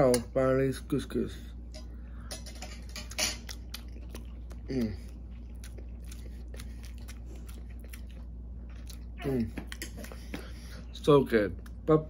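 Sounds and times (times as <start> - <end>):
person chewing food: 2.8 - 10.9.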